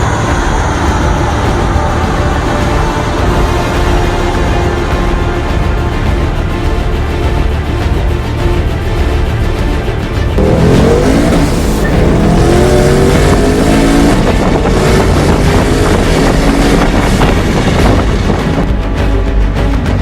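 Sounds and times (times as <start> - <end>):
car engine revving on dyno: 10.4 - 18.4.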